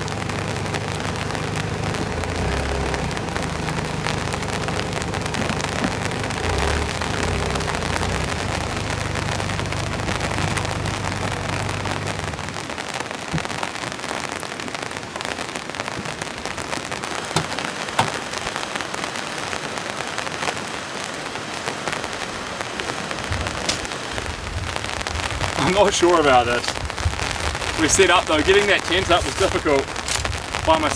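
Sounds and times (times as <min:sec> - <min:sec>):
low rumble: 0:00.0 - 0:12.8
heavy rain hissing: 0:00.0 - 0:30.9.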